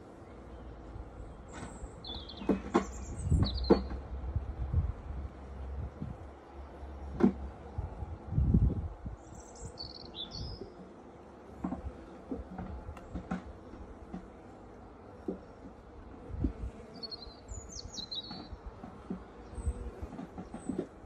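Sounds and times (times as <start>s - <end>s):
bird chirping: 1.4s - 4.0s, 9.3s - 10.7s, 17.0s - 18.5s.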